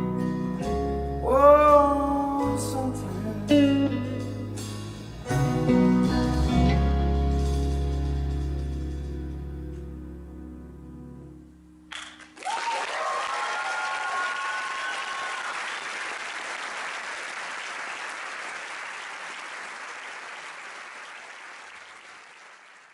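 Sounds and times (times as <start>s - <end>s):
audience applause: 11.9s - 22.9s
audience cheering: 12.3s - 22.9s.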